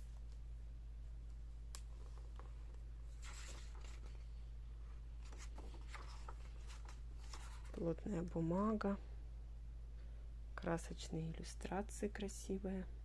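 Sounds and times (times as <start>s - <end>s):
book pages turning: 1.8s - 4.4s, 5.2s - 8.0s.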